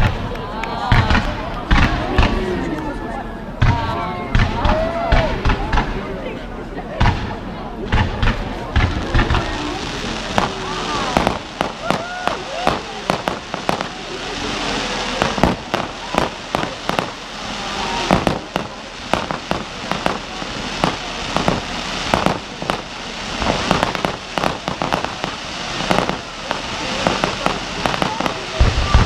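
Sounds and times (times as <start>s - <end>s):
fireworks bangs and crackles: 0.0s - 29.0s
steady hiss: 8.0s - 29.0s.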